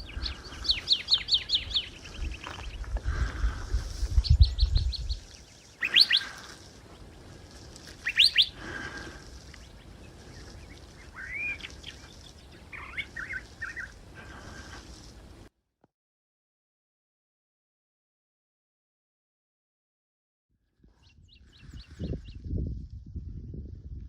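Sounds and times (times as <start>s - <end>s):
songbirds calling: 0.0s - 14.9s.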